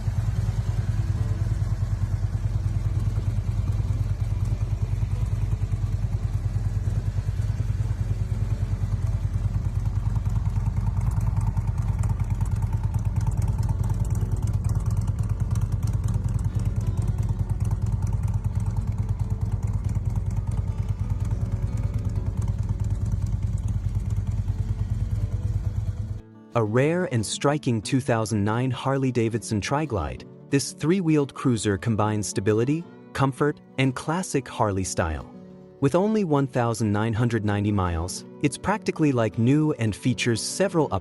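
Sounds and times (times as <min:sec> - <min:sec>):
motorcycle engine running: 0:00.0 - 0:27.4, 0:36.6 - 0:39.6.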